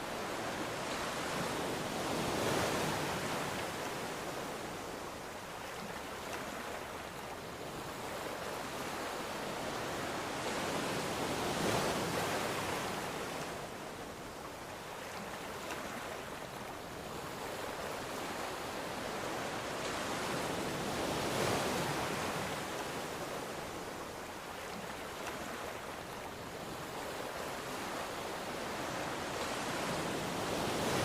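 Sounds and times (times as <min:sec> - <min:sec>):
ocean waves breaking: 0:14.8 - 0:31.0.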